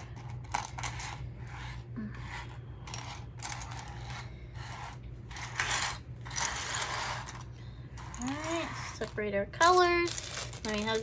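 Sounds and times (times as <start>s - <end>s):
plastic pieces rattling: 5.3s - 11.0s.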